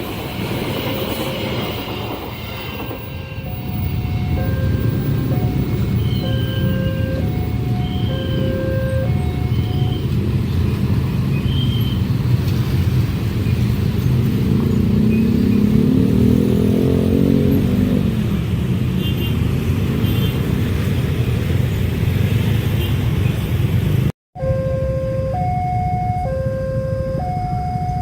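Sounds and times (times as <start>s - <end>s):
diesel locomotive engine: 0.0s - 15.7s
train rumbling past: 0.0s - 18.7s.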